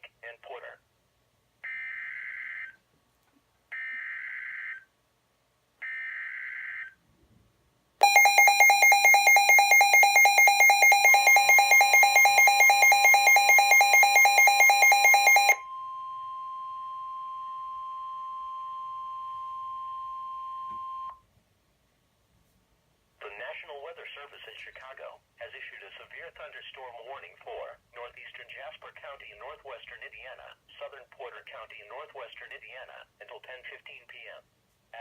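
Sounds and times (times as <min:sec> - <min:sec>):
rapidly pulsing alarm beep: 0:08.0 - 0:16.2
steady warning alarm tone: 0:08.0 - 0:21.2.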